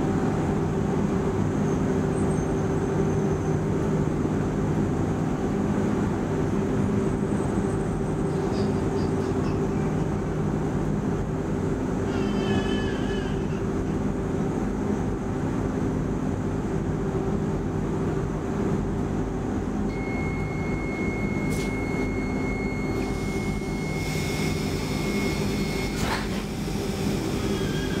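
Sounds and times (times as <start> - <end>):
train electrical equipment drone: 0.0 - 28.0
thin high steady tone: 19.9 - 26.0.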